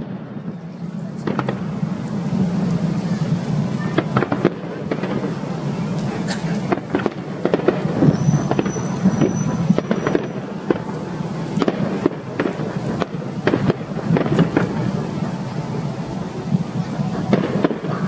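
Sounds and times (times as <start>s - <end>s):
fireworks bangs and crackles: 0.0s - 18.0s
thin high whistle: 8.0s - 10.5s.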